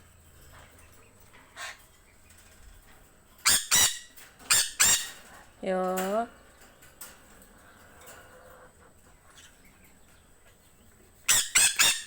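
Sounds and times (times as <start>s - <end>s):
parrot squawking: 3.4s - 5.3s, 11.3s - 12.0s.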